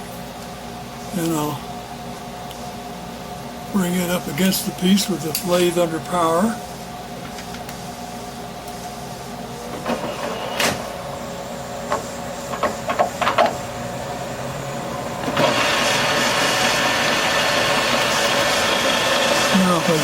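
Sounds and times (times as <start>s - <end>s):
metal lathe running: 11.1s - 20.0s.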